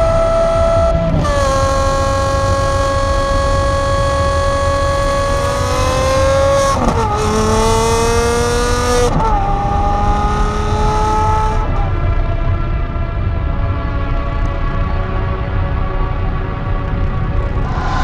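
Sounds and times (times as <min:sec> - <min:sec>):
sports car engine accelerating: 0:00.0 - 0:14.4.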